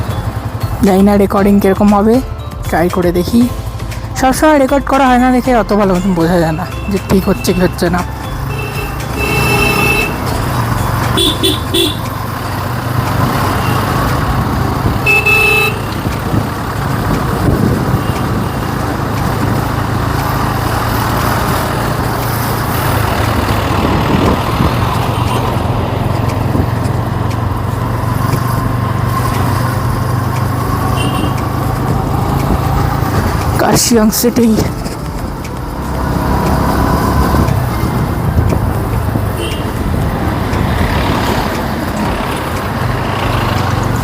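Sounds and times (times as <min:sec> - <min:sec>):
motorcycle engine and road noise: 0:00.0 - 0:44.0
horn beeps: 0:06.5 - 0:12.2, 0:15.0 - 0:16.0, 0:25.0 - 0:25.7, 0:30.9 - 0:31.5, 0:39.3 - 0:39.8.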